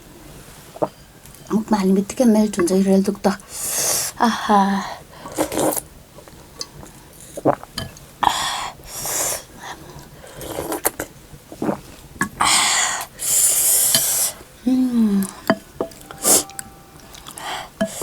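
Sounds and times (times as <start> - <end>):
slurping hot soup: 5.2 - 14.4.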